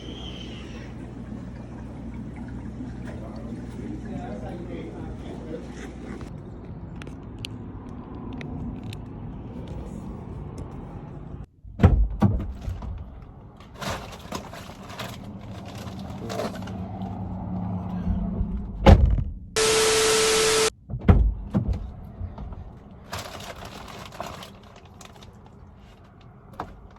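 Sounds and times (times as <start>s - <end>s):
car engine and road rumble: 6.2s - 26.9s
loud knocks and thumps: 11.7s - 13.1s, 20.8s - 22.5s
low engine hum: 14.8s - 20.7s.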